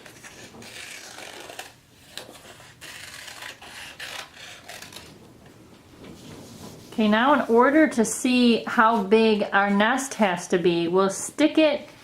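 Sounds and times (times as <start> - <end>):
scissors snipping paper: 0.0 - 5.1
paper rustling: 0.0 - 7.9.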